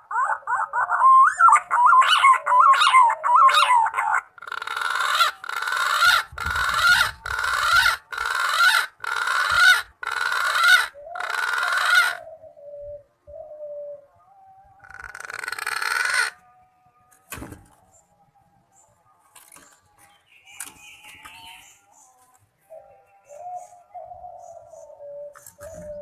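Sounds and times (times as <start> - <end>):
pigeon harsh rasping calls: 0.0 - 12.4, 14.8 - 16.4.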